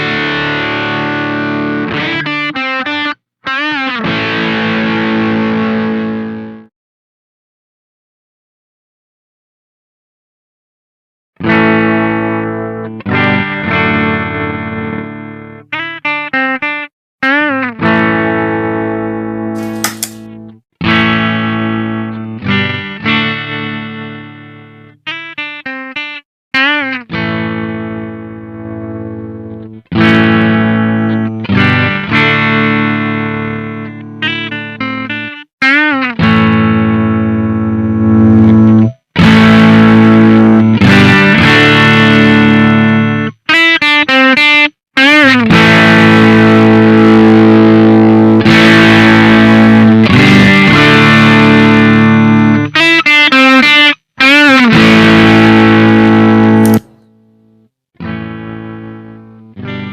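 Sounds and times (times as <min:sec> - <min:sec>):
distorted electric guitar: 0:00.0 - 0:06.6, 0:26.6 - 0:43.4, 0:44.0 - 0:57.1, 0:58.0 - 0:59.9.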